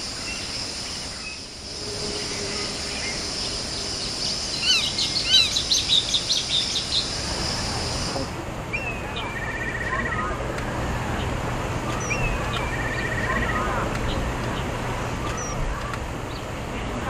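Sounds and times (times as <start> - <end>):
high-pitched insect drone: 0.0 - 5.7
bird chirping: 0.0 - 16.5.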